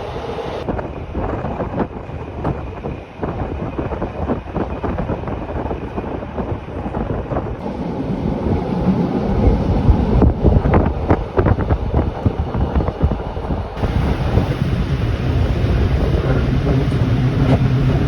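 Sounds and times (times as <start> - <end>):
train rumbling: 0.0 - 18.0
wind buffeting microphone: 0.0 - 18.0.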